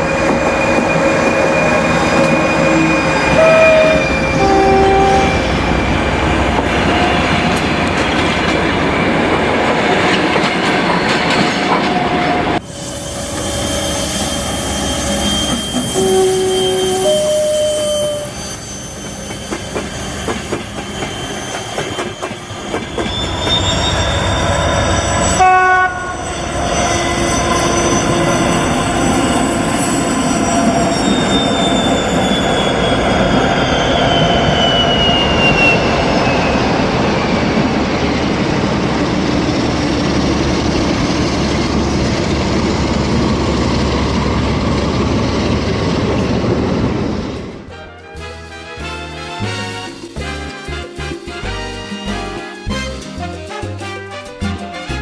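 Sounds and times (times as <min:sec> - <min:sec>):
locomotive horn blast: 0:02.5 - 0:05.8, 0:15.7 - 0:18.4, 0:25.4 - 0:26.2, 0:47.7 - 0:55.0.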